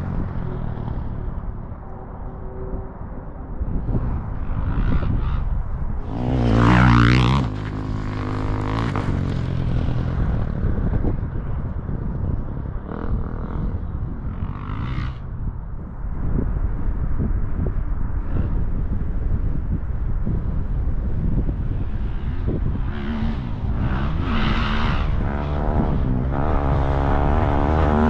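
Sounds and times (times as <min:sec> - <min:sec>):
dirt bike engine revving: 0:06.0 - 0:10.1, 0:22.8 - 0:28.0.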